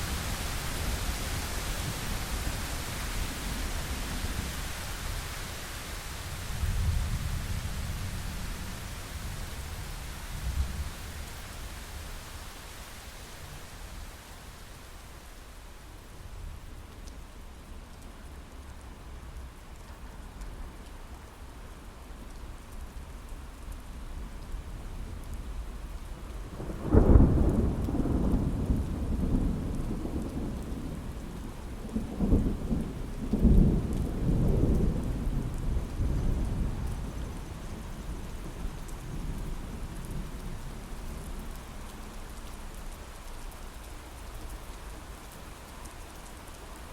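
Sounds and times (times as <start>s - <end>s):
rain pattering on a window: 0.0s - 46.9s
thunder rumbling: 26.5s - 41.6s.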